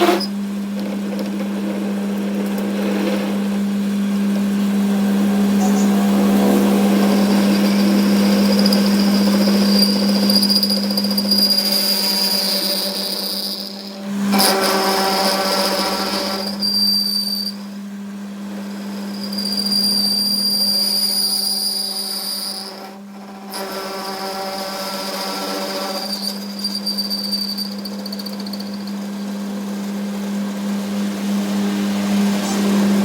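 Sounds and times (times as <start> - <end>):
machine low hum: 0.0 - 21.0, 22.7 - 33.0
high-pitched squeal: 4.7 - 17.6, 19.1 - 28.9.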